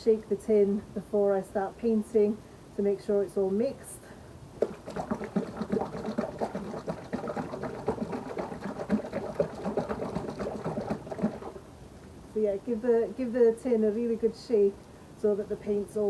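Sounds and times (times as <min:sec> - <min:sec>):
paint sloshing in shaken can: 0:04.6 - 0:11.7.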